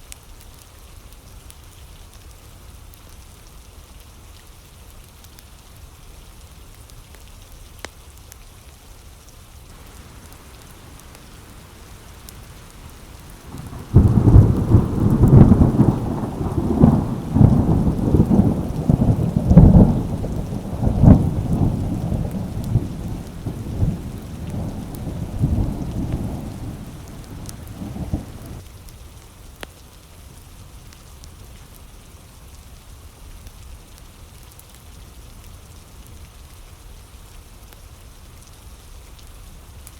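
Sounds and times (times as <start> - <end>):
steady rain: 0.4 - 39.9
rolling thunderclap: 9.7 - 28.6.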